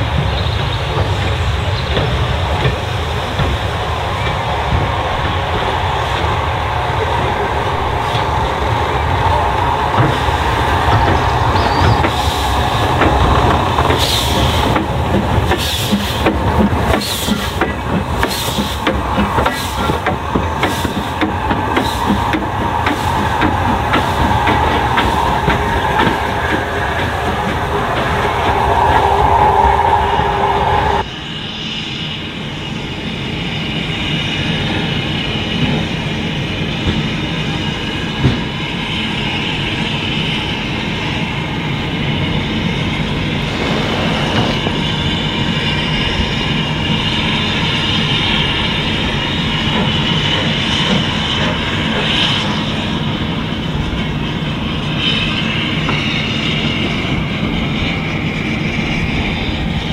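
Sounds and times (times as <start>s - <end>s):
train wheels rumbling on rails: 0.0s - 59.9s
high wheel squeal: 4.0s - 35.4s, 38.6s - 59.6s
loud tonal sound: 43.1s - 47.0s.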